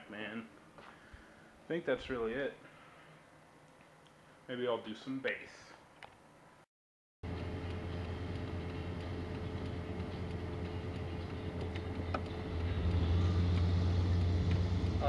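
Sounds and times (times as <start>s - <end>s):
car engine and road noise: 7.3s - 15.0s.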